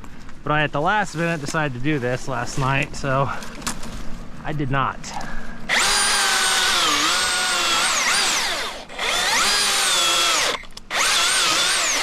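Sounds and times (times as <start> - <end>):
electric chainsaw cutting wood: 5.7 - 12.0.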